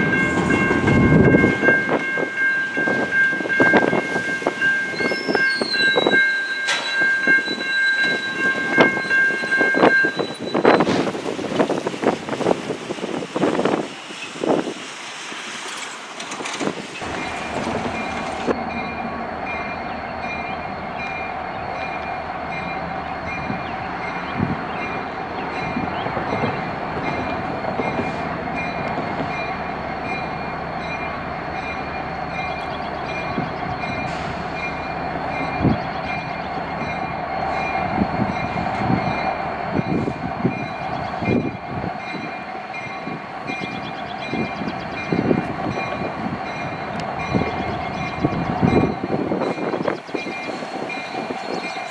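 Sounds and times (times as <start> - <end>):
wheels clanking over rail joints: 0.0 - 23.4
train cars rolling on rails: 0.0 - 51.9
wheel squeal: 4.8 - 11.1.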